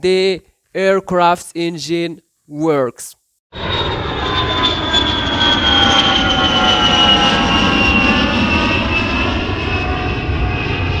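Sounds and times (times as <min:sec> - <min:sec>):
jet engine running: 0:03.6 - 0:11.0.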